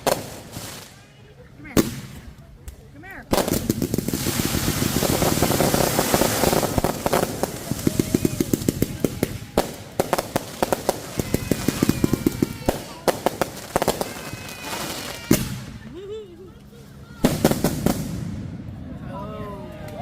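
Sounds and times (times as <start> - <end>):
fireworks crackling and popping: 0.0 - 18.8.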